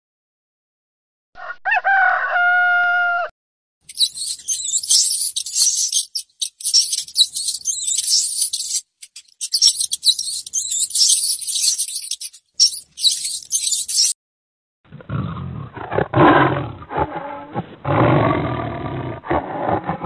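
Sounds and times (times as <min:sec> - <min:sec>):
rats squeaking: 0:03.9 - 0:14.2.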